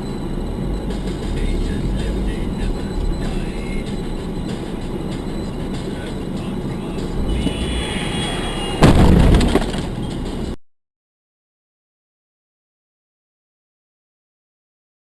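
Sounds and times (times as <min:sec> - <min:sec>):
road and engine rumble: 0:00.0 - 0:10.6
loud crash of impact: 0:08.8 - 0:09.9.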